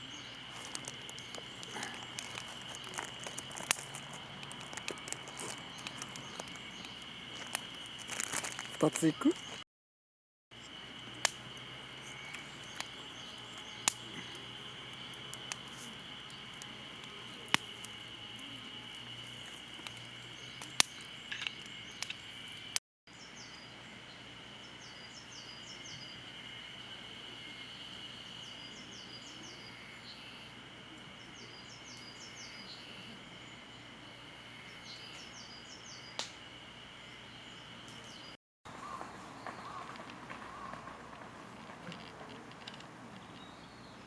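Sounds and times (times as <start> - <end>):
insects chorus: 0.0 - 9.6, 10.5 - 44.0
campfire crackling and popping: 0.1 - 9.6, 10.7 - 22.8, 38.9 - 43.4.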